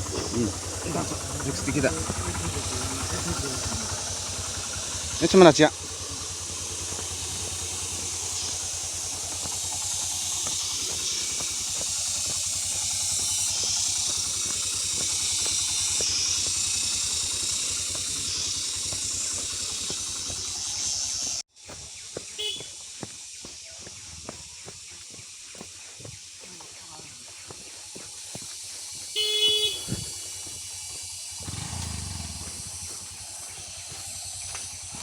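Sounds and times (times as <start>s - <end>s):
loud even hiss: 0.0s - 21.4s, 29.1s - 35.0s
motorcycle engine idling: 0.0s - 35.0s.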